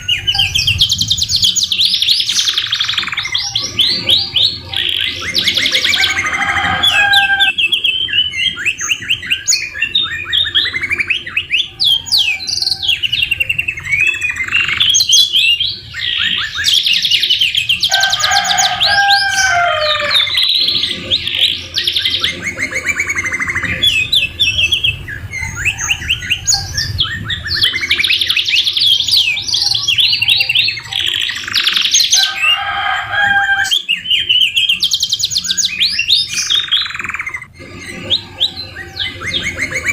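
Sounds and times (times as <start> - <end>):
low whistled bird notes: 0.0 - 32.9
canaries singing trills: 0.0 - 39.9.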